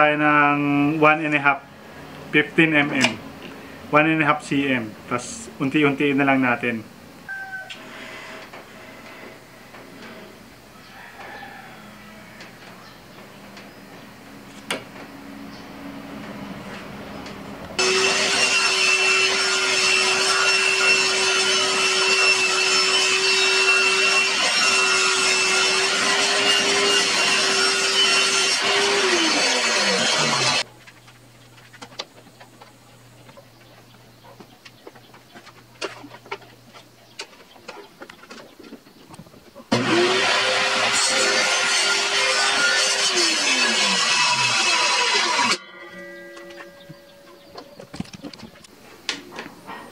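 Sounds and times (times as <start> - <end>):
table saw ripping wood: 17.8 - 30.7, 39.7 - 46.2.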